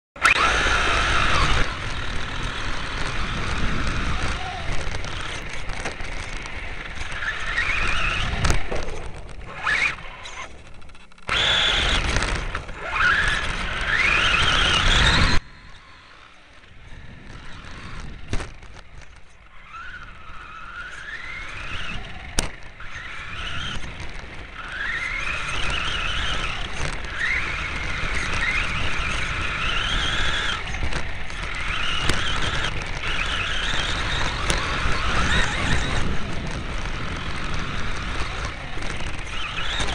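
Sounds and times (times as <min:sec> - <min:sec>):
rumble of tyres and wind: 0:00.2 - 0:39.9
toy truck motor whining: 0:00.2 - 0:39.9.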